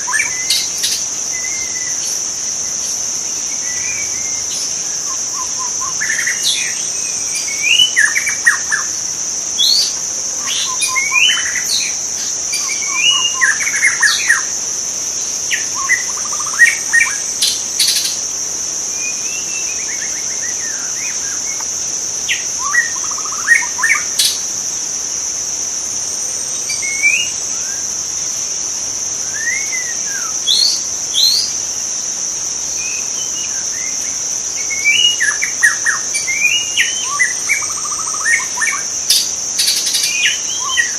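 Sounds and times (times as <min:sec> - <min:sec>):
high-pitched insect drone: 0:00.0 - 0:40.9
bird singing whistled phrases: 0:12.6 - 0:14.4.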